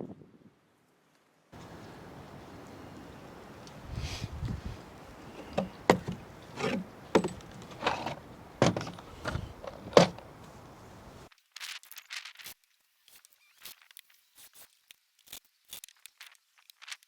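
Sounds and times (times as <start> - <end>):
sharp knocks and thuds: 4.5 - 11.2.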